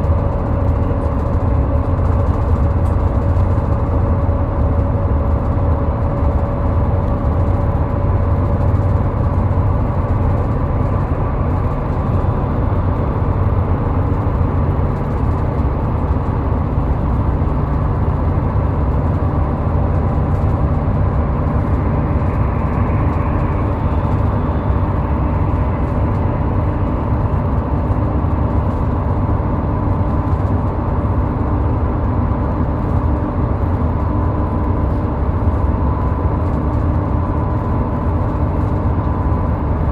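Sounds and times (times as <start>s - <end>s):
highway traffic rumble: 0.0s - 39.9s.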